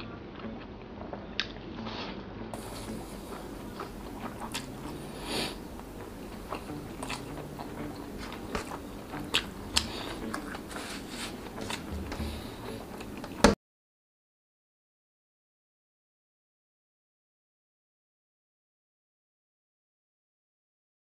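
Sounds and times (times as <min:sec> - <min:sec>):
man chewing with wet smacks: 0:02.6 - 0:13.5.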